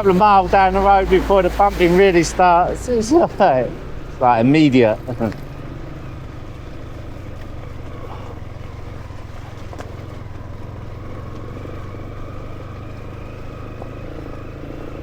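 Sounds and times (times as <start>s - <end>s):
motorcycle engine running: 0.0s - 15.0s
light knocks from rough road: 6.6s - 15.0s.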